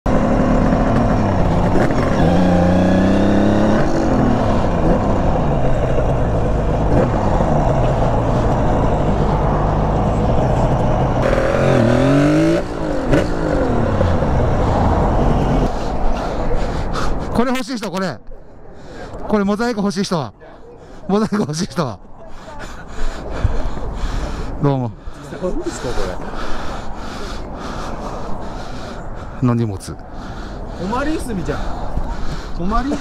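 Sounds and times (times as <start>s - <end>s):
motorcycle engine revving: 0.1s - 15.8s.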